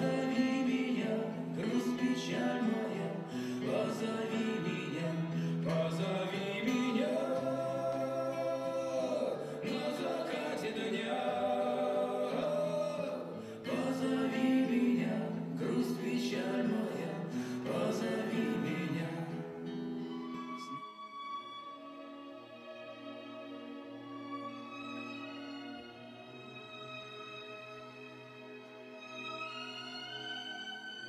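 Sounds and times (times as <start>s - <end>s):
choir singing held notes: 0.0s - 19.1s.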